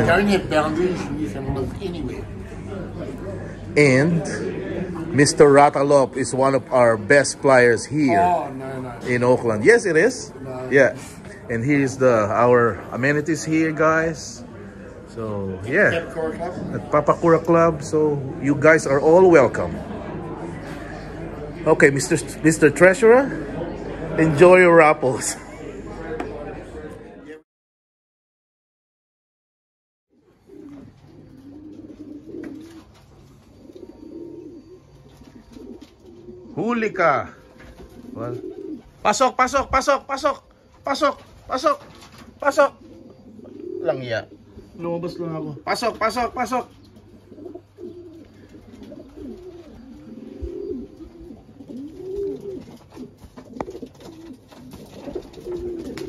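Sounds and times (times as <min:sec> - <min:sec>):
pigeons cooing: 0:00.0 - 0:24.5, 0:30.1 - 0:56.0.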